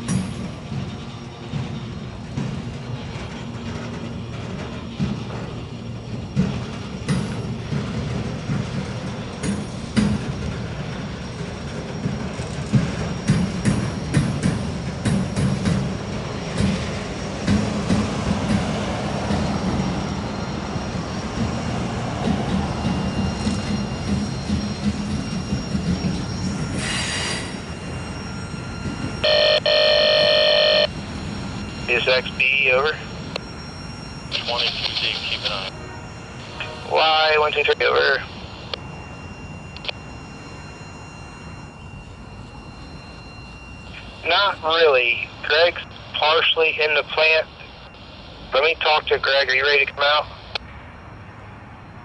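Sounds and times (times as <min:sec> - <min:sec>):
train wheels rumbling on rails: 0:00.0 - 0:45.8
train horn chord: 0:35.7 - 0:37.0.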